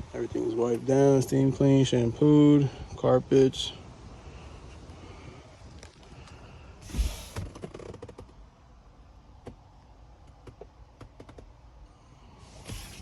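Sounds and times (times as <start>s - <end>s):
short rustle: 12.4s - 13.0s.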